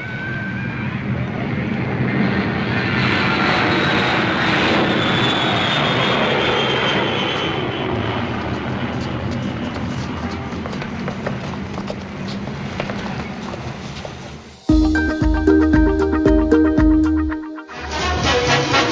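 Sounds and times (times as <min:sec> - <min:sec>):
aircraft engine droning: 0:00.0 - 0:12.8, 0:17.7 - 0:18.9.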